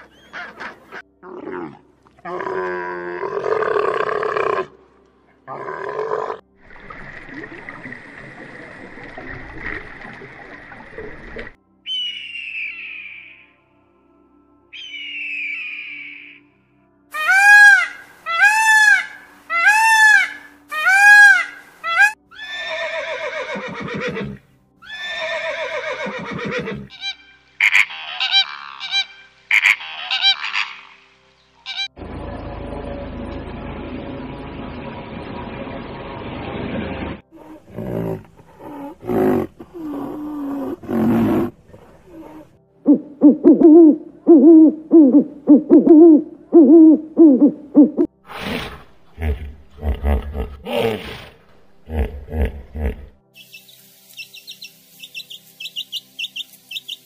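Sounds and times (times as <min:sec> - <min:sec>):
owl hooting: 0:11.9 - 0:13.4, 0:14.8 - 0:16.4, 0:38.6 - 0:48.1
peacock calling: 0:14.8 - 0:16.4, 0:17.1 - 0:24.1, 0:24.8 - 0:31.0
horse whinnying: 0:22.3 - 0:26.9
rhinoceros grunting and moaning: 0:37.3 - 0:42.6, 0:48.4 - 0:53.2.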